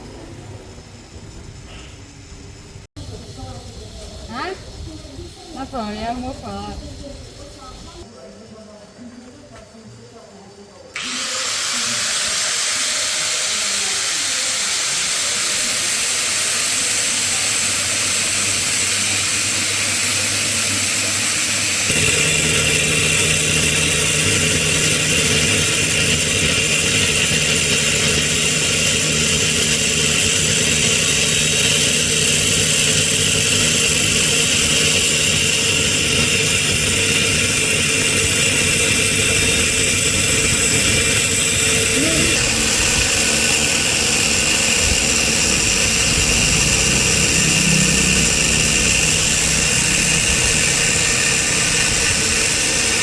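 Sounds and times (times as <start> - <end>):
workshop tool hissing: 1.5 - 8.1, 10.9 - 53.0
low motor hum: 16.5 - 53.0.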